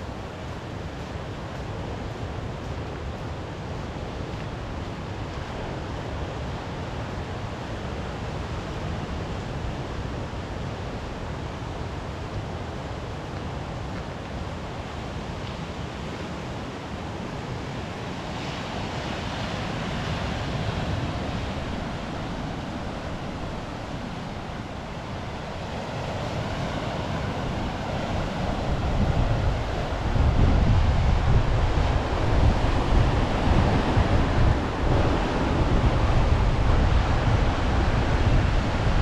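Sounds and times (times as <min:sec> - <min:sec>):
waves washing on shore: 0:00.0 - 0:39.0
wind buffeting microphone: 0:19.3 - 0:39.0.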